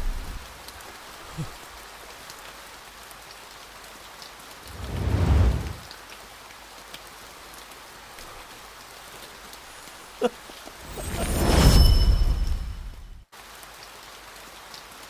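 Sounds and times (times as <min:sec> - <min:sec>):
rain falling: 0:00.0 - 0:15.0
low rumble: 0:04.6 - 0:05.8.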